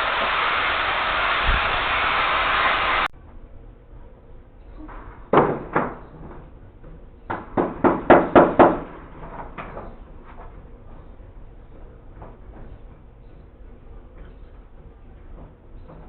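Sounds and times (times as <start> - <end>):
steady rushing noise: 0.0 - 3.1
sharp knocks: 7.3 - 9.9.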